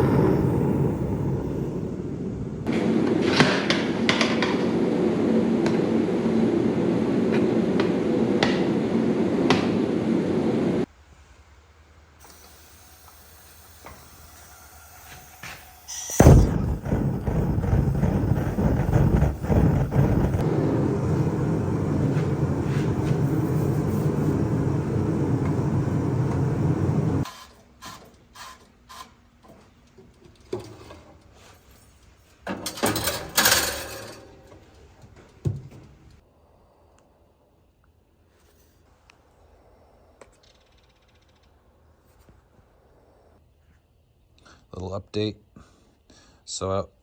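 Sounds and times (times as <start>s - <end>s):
machine running: 0.0s - 10.8s, 16.1s - 27.3s.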